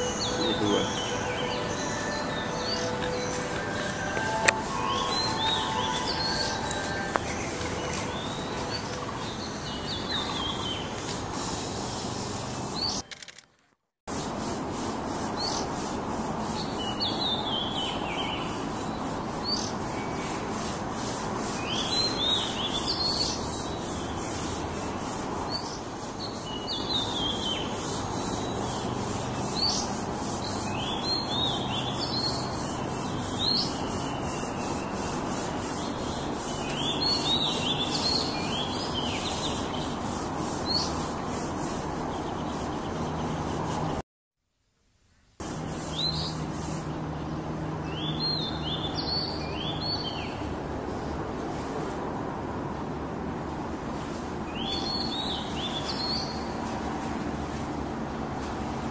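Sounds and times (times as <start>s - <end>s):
bird chirping calls: 0.0s - 13.0s, 16.5s - 44.0s, 54.5s - 56.5s.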